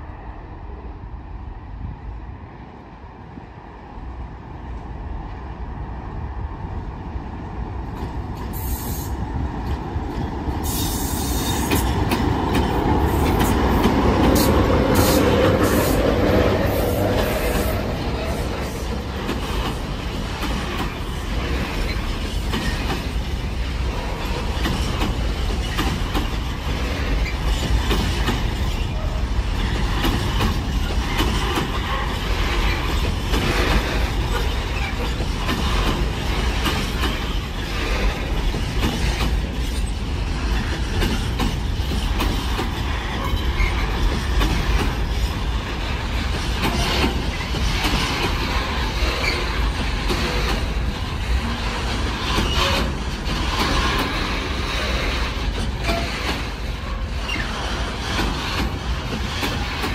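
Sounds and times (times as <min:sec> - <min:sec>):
diesel locomotive engine: 0:00.0 - 0:59.9
wagons clicking over rail joints: 0:09.6 - 0:59.9
high wheel squeals: 0:55.8 - 0:57.8.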